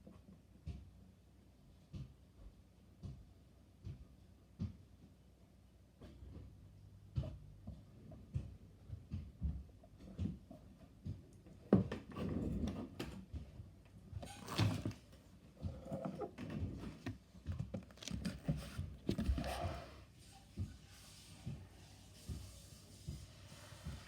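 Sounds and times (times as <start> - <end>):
soft thumps and handling noises: 6.0 - 24.0.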